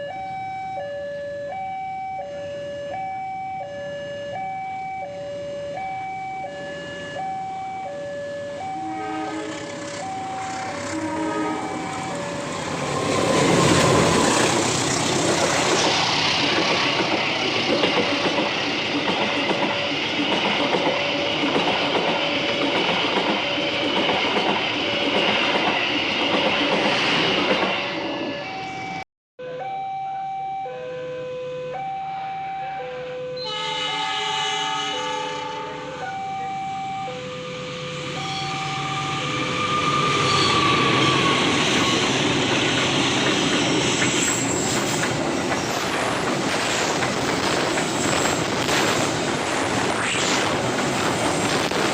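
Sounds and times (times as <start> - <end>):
level-crossing alarm two-tone signal: 0.0 - 14.2, 28.0 - 42.1
train rattling on rails: 8.9 - 29.0, 37.1 - 51.9.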